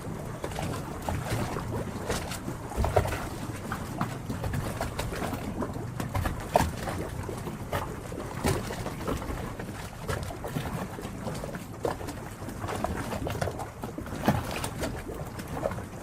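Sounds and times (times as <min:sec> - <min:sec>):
small water slaps and knocks: 0:00.0 - 0:16.0
water lapping against hulls: 0:00.0 - 0:16.0.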